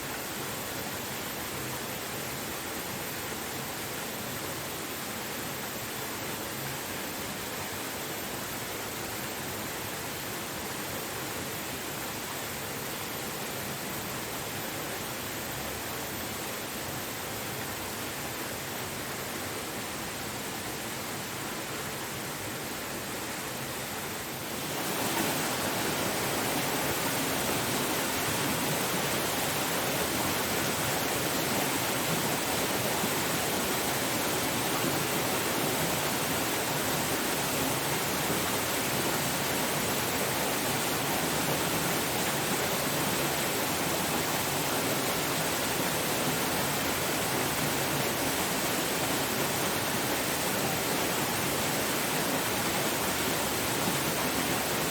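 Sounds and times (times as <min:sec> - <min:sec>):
waterfall roaring: 0:23.9 - 0:54.9.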